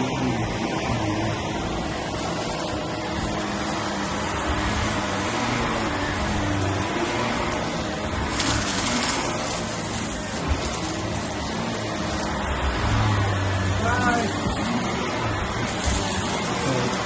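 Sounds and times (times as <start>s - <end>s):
vacuum cleaner on carpet: 0.0s - 17.0s.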